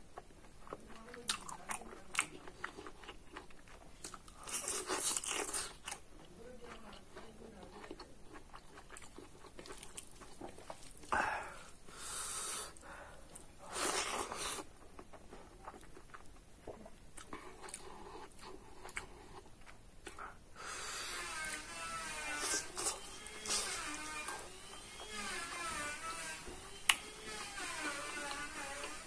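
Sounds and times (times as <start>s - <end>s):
man chewing food: 0.0s - 29.0s
breathy bursts: 11.1s - 13.3s, 20.6s - 21.2s.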